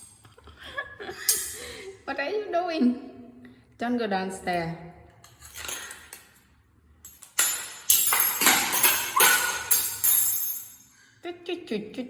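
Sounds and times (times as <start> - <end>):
metallic jingling and rattling: 7.0 - 10.9.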